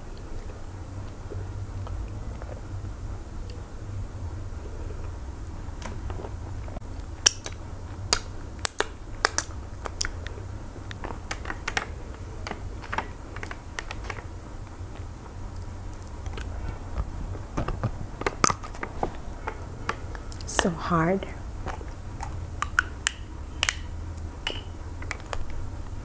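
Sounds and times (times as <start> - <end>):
steady low hum: 0.0 - 26.0
wet chewing mouth clicks: 7.2 - 11.6, 21.6 - 25.4.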